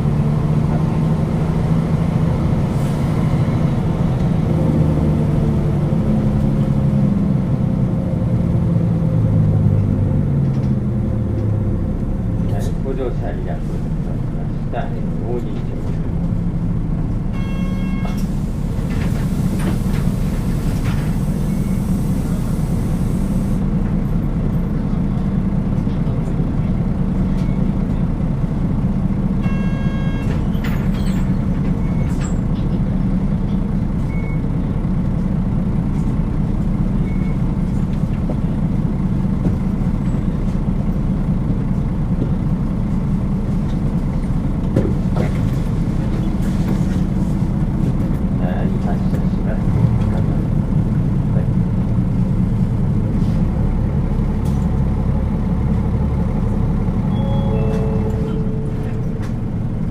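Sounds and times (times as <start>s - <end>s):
bus diesel engine running: 0.0s - 59.9s
road noise: 0.0s - 59.9s
short chime: 57.1s - 59.2s.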